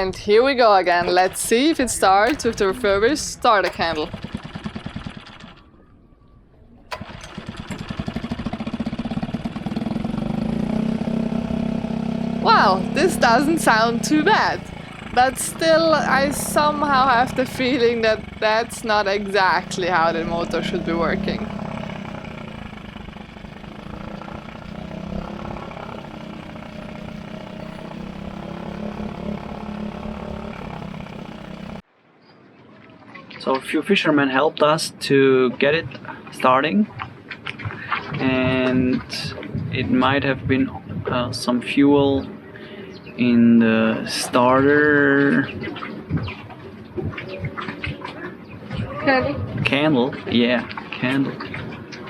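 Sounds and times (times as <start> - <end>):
outboard motor running: 0.0 - 6.0, 6.8 - 31.9, 35.9 - 41.1.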